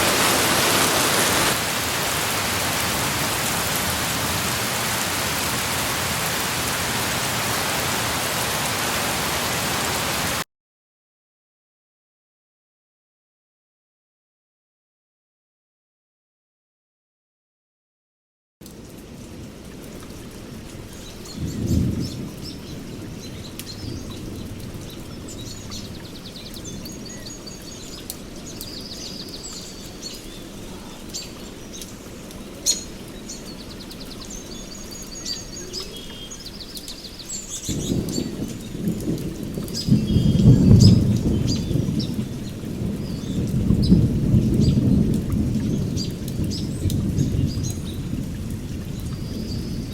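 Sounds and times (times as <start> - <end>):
birds chirping: 0.0 - 10.4, 20.9 - 44.0
thunder rumbling: 0.0 - 10.4, 21.4 - 26.0, 37.6 - 49.9
steady rain falling: 0.0 - 10.5, 18.6 - 49.9.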